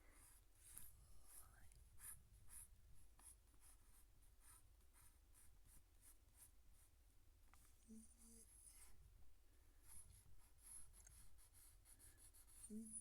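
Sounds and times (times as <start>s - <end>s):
pencil scratching on paper: 0.2s - 7.0s, 9.8s - 13.0s.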